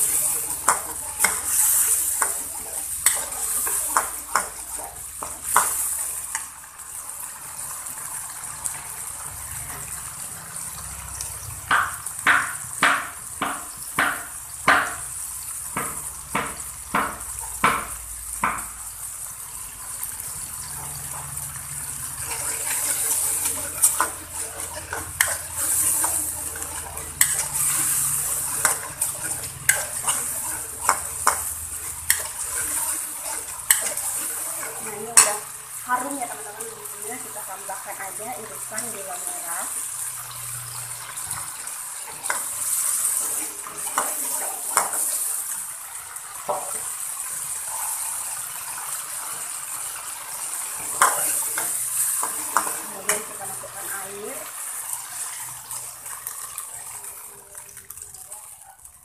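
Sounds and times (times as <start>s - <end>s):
metal spatula scraping a pan: 0.0s - 6.5s, 20.0s - 37.3s, 40.1s - 45.7s, 50.3s - 56.6s
spice paste sizzling in oil: 0.0s - 59.0s.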